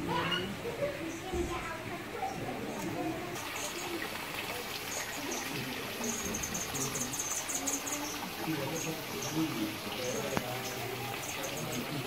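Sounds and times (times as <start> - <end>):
faint murmur of people talking: 0.0 - 12.0
water trickling: 0.0 - 12.0
small bird chirping: 4.8 - 12.0.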